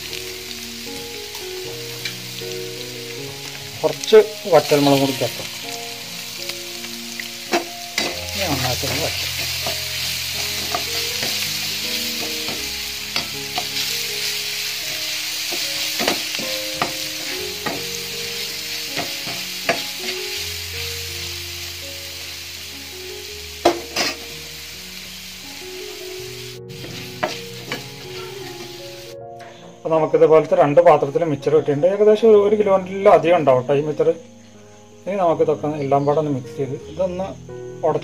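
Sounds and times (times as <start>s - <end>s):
garlic sizzling in hot oil: 0.0s - 29.2s
metal spoon scraping pan: 23.7s - 24.2s.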